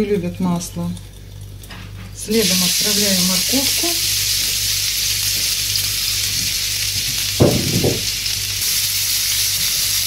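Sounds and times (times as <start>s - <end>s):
carrot sizzling in hot oil: 0.3s - 10.0s
low thud: 7.4s - 8.1s.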